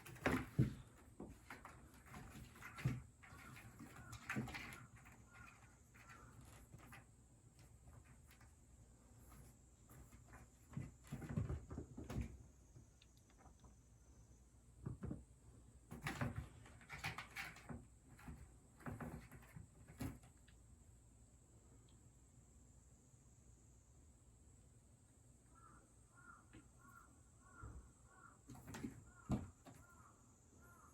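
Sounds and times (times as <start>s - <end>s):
kitten thumps and scuffles: 0.0s - 8.5s, 9.2s - 12.5s, 15.9s - 20.4s, 28.5s - 30.0s.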